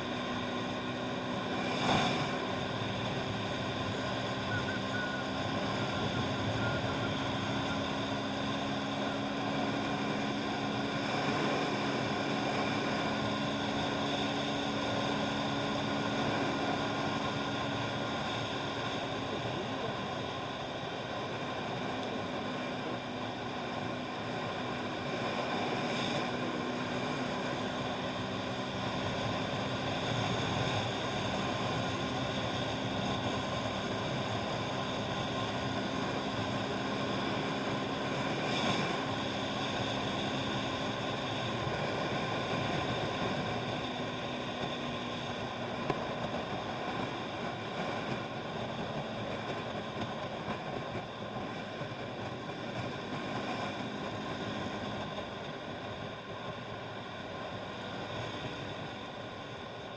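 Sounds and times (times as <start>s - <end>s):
motorbike engine hum: 0.0s - 59.9s
wind and road noise hiss: 0.0s - 59.9s.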